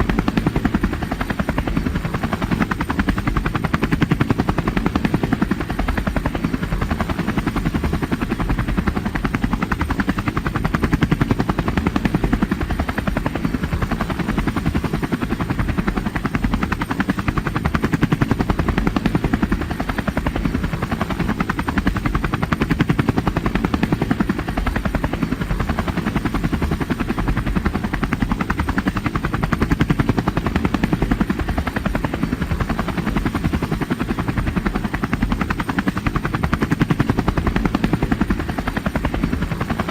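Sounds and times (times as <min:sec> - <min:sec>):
helicopter rotor chopping: 0:00.0 - 0:39.9.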